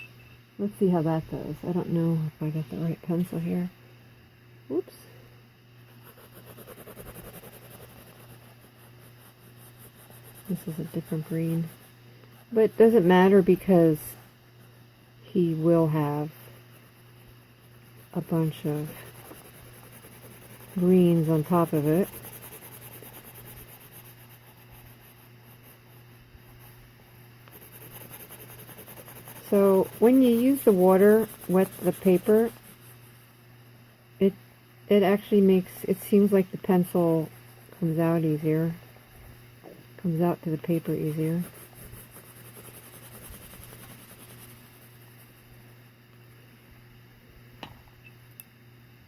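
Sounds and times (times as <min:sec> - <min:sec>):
pencil scratching on paper: 0:05.9 - 0:14.8, 0:15.4 - 0:26.8, 0:27.5 - 0:33.1, 0:35.2 - 0:38.8, 0:40.1 - 0:45.4.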